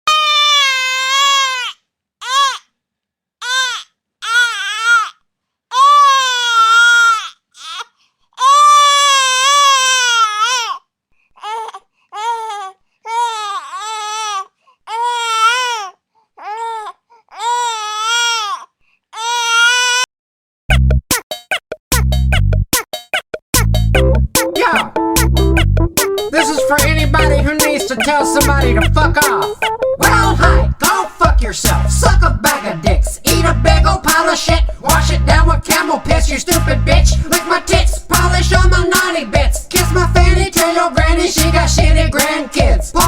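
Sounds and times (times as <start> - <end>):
infant crying: 0.1 - 2.7, 3.4 - 10.8, 11.4 - 20.1
music with a heavy beat: 20.7 - 43.0.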